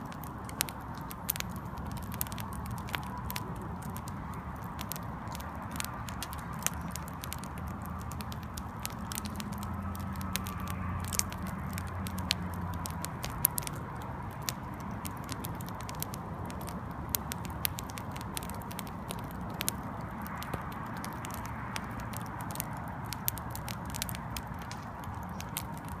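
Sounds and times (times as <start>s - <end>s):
firewood crackling and popping: 0.0s - 26.0s
low rush of fire: 0.0s - 26.0s.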